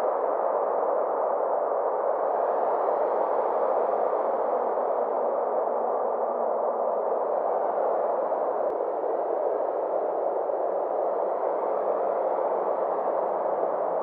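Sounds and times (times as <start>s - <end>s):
filtered noise band: 3.0s - 14.0s.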